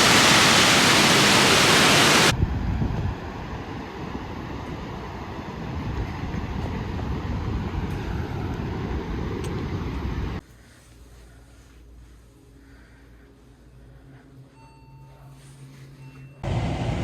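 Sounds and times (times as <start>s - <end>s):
waterfall roaring: 0.0s - 2.3s.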